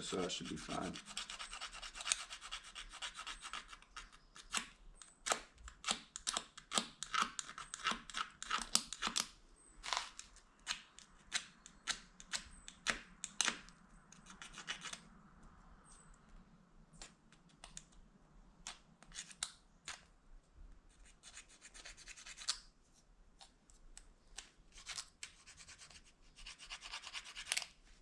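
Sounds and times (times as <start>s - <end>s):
plastic fork scraping plastic spoon: 6.6s - 9.2s.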